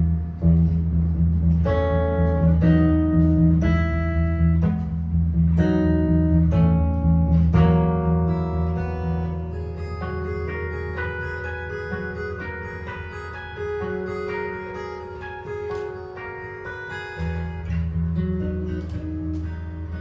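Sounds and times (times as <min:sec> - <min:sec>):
held low bass note: 0:00.0 - 0:10.9
jazz guitar chords and notes: 0:00.0 - 0:20.0.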